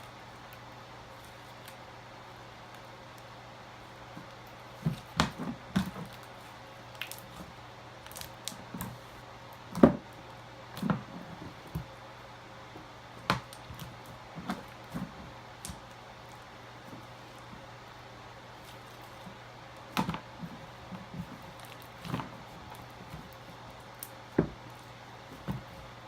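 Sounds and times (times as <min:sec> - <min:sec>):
slime squishing by hand: 0:03.8 - 0:12.0, 0:13.1 - 0:17.8, 0:18.4 - 0:26.0.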